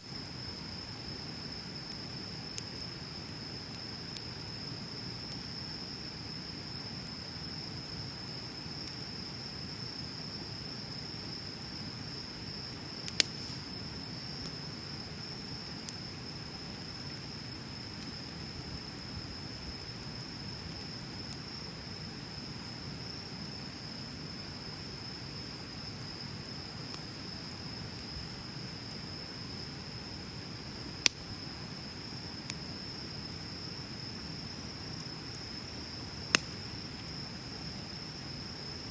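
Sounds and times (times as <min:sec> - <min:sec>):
high insect trill: 0:00.0 - 0:38.9
fire crackling pops: 0:00.1 - 0:38.9
bonfire flames rushing: 0:10.4 - 0:29.1, 0:34.2 - 0:38.9.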